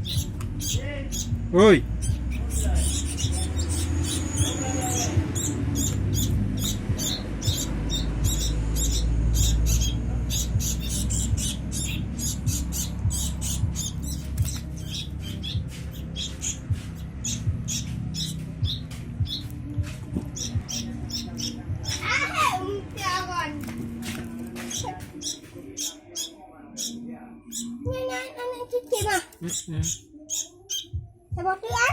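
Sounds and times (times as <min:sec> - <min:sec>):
nestlings cheeping: 0:00.0 - 0:22.3, 0:24.6 - 0:27.8, 0:29.0 - 0:31.0
low rumble: 0:00.0 - 0:24.0.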